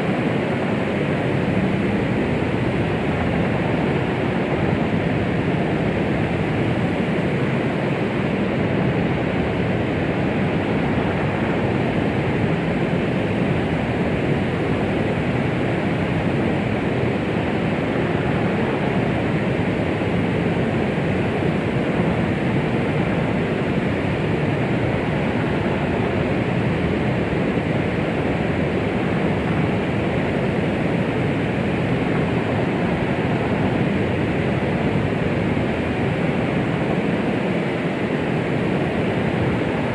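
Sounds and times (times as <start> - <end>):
white noise: 0.0 - 39.9.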